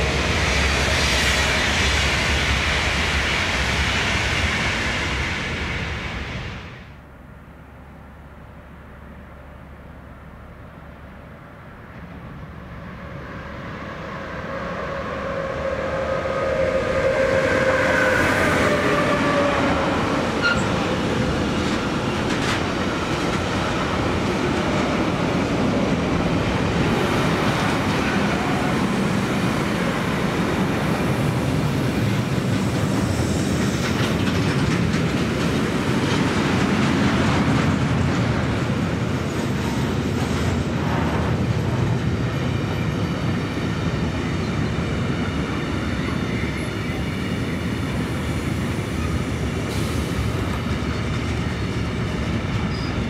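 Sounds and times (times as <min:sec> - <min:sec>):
train wheels rumbling and clacking: 0:11.7 - 0:53.0.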